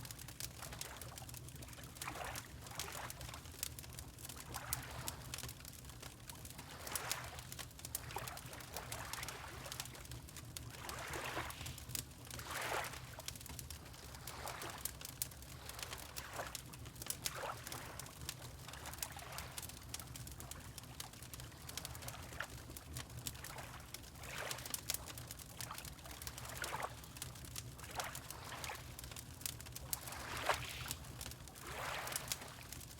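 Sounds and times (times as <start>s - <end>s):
wood fire crackling: 0.0s - 11.0s, 11.7s - 32.9s
water lapping: 8.1s - 10.0s, 10.8s - 11.8s, 12.4s - 13.2s, 13.9s - 16.6s, 17.3s - 19.6s, 26.0s - 27.0s, 27.8s - 29.0s, 29.9s - 32.8s.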